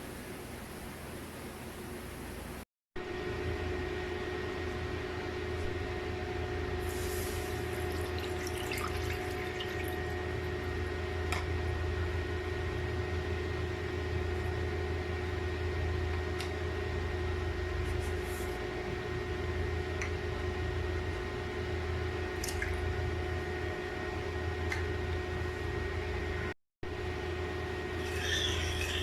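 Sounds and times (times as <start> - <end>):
low electrical hum: 0.0 - 29.0
water splashing and trickling: 7.8 - 10.0.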